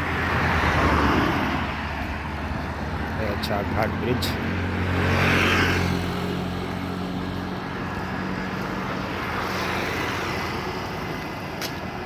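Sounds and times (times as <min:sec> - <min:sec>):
vehicle passing with tyre noise: 0:00.0 - 0:12.0.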